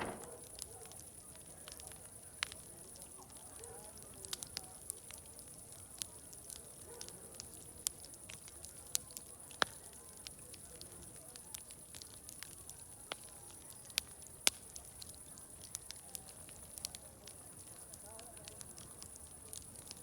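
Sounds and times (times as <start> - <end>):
distant crowd chatter: 0.0 - 0.5
wood fire crackling: 0.0 - 20.0.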